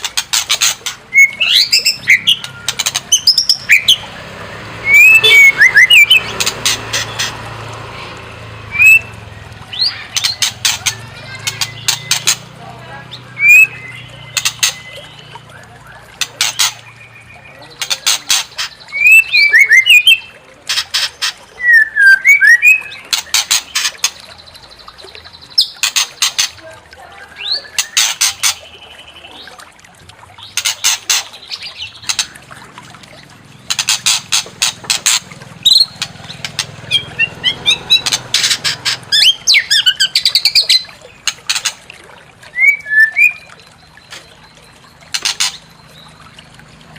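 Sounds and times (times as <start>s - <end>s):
bird singing rattles and whistles: 4.8s - 7.3s, 42.5s - 44.4s.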